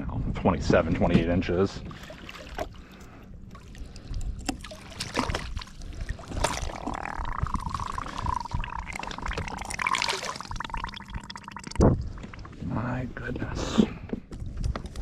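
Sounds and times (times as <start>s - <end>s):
water sloshing: 1.8s - 12.6s.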